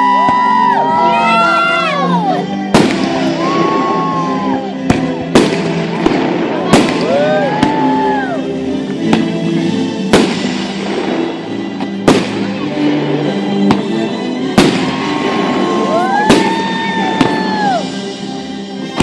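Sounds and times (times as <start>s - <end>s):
music with long held notes: 0.0s - 19.0s
fireworks banging: 2.7s - 3.5s, 4.9s - 7.9s, 10.1s - 12.9s, 13.6s - 17.6s.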